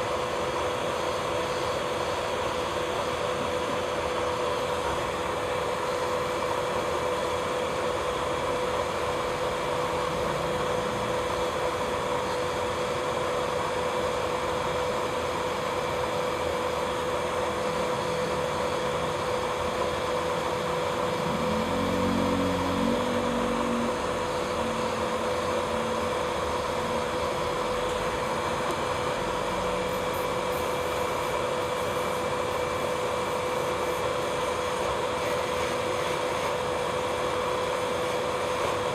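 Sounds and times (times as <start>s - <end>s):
electric nail drill whining: 19.9s - 38.9s.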